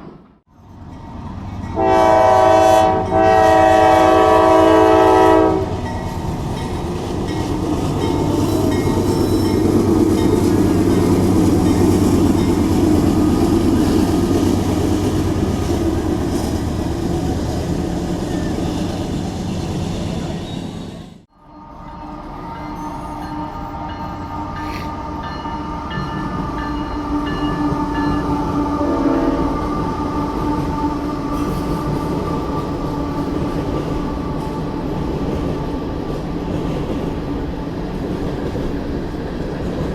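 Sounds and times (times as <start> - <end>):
train rumbling past: 0.0 - 39.9
train horn blasts: 1.8 - 5.9, 21.4 - 32.0.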